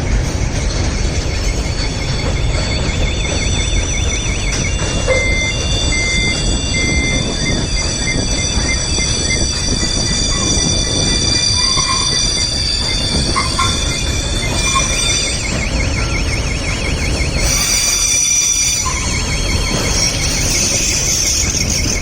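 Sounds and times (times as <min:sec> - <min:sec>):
freight train wagons rumbling: 0:00.0 - 0:22.0
high wheel squeal: 0:00.3 - 0:22.0.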